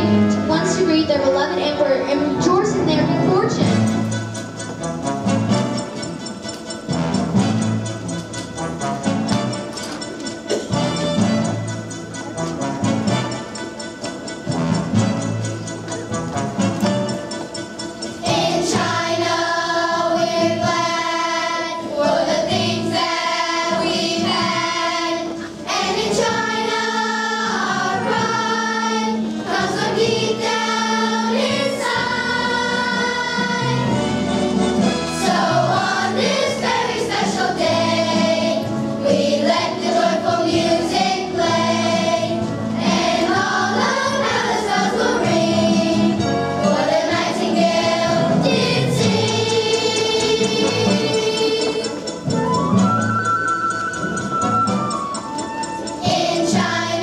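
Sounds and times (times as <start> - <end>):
instrumental accompaniment: 0.0 - 57.0
children's choir singing: 18.2 - 52.4, 55.7 - 57.0.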